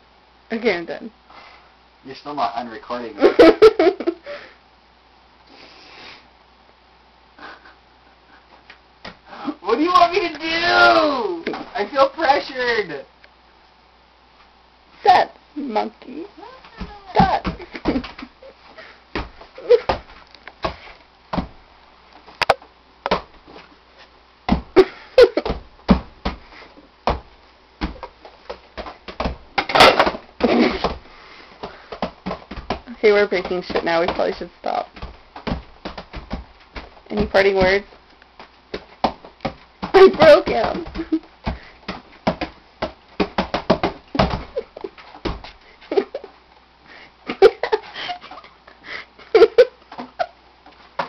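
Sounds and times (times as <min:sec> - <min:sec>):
faint breathy hiss: 0:01.0 - 0:03.1, 0:04.0 - 0:09.8, 0:26.4 - 0:26.9, 0:30.0 - 0:32.1, 0:46.8 - 0:49.3
person's voice: 0:09.4 - 0:13.1, 0:15.0 - 0:17.6, 0:40.0 - 0:41.0
knocks and thumps of handling: 0:16.6 - 0:18.3, 0:19.1 - 0:21.6, 0:24.5 - 0:45.6.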